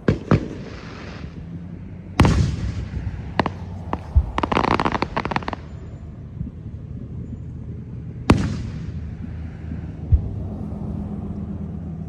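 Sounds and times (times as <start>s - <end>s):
firework bang: 0.0s - 1.5s, 2.2s - 6.0s, 8.3s - 9.2s
firework cracks: 0.0s - 6.0s, 8.3s - 9.3s
firework crackling: 0.0s - 6.6s, 8.3s - 10.4s.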